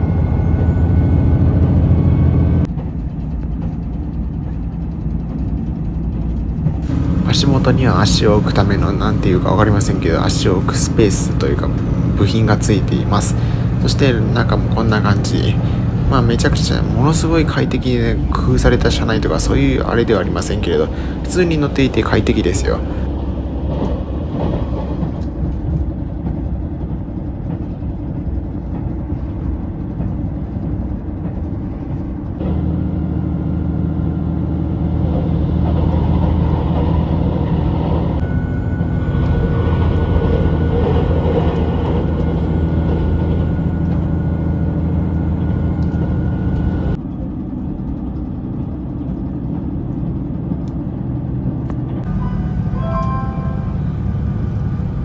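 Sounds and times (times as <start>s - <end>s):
train rumbling on rails: 0.0s - 55.0s
faint steady high tone: 52.1s - 54.3s.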